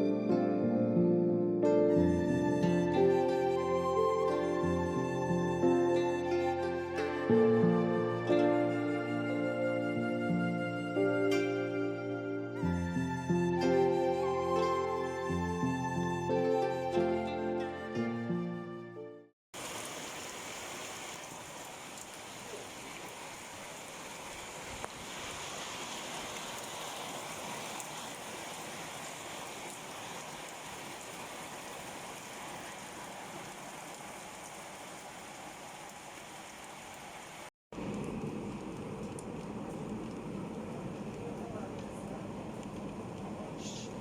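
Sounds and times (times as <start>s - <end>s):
music: 0.0s - 19.3s
falling water hiss: 19.6s - 44.0s.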